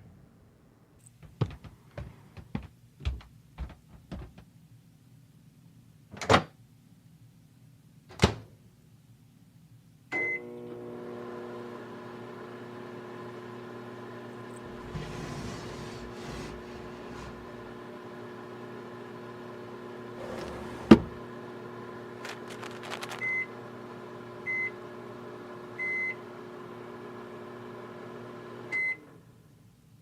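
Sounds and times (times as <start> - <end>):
microwave beep: 10.2 - 10.6, 23.1 - 23.6, 24.4 - 24.8, 25.8 - 26.3, 28.7 - 29.1
microwave humming: 10.2 - 29.2.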